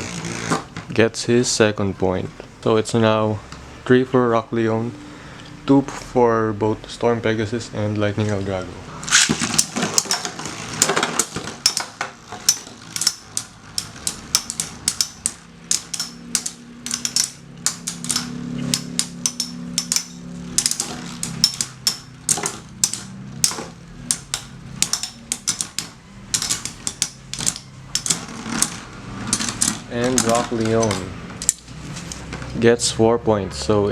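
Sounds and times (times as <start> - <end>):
spinning tops whirring: 0.0 - 0.8, 8.9 - 32.4
spinning tops clacking: 9.0 - 32.3.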